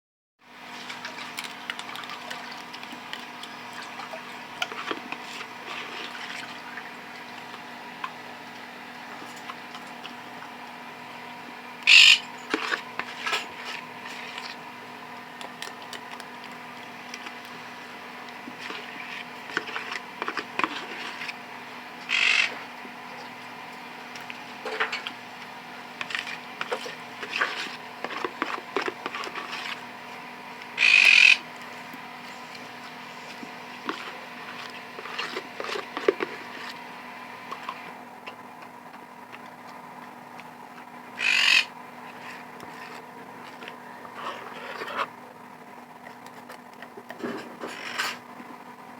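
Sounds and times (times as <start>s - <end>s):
steady electrical hum: 0.5s - 48.9s
short noisy bursts: 30.8s - 31.5s.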